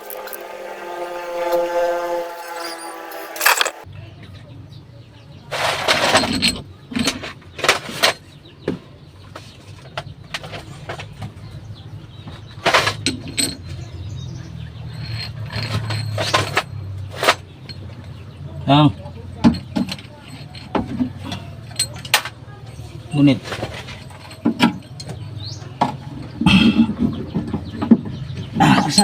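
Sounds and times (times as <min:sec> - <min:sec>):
metal tools clinking on engine: 0:00.0 - 0:03.8, 0:05.9 - 0:08.2, 0:12.7 - 0:26.4, 0:28.7 - 0:29.0.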